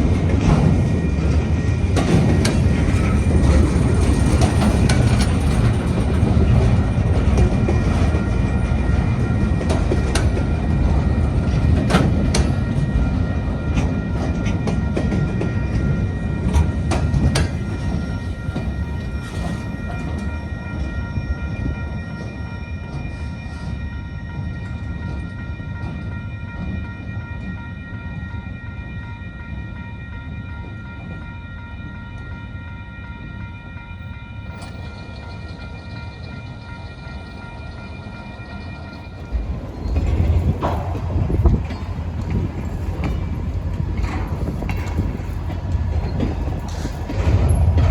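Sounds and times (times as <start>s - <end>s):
train rumbling past: 0.0s - 28.6s, 32.9s - 47.9s
wheels clicking over rail joints: 0.2s - 21.0s, 36.9s - 47.9s.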